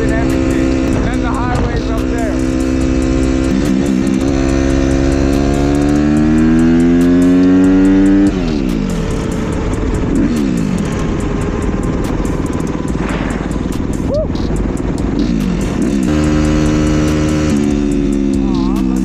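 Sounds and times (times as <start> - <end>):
motorcycle engine accelerating: 0.0 - 19.0
motorcycle engine slowing: 0.0 - 19.0.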